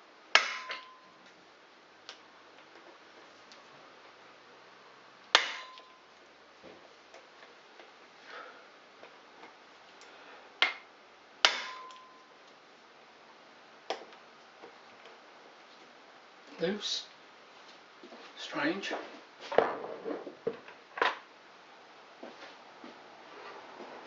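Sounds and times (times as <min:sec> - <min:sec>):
hammer striking metal: 0:00.4 - 0:01.2, 0:05.4 - 0:06.0, 0:11.4 - 0:12.3.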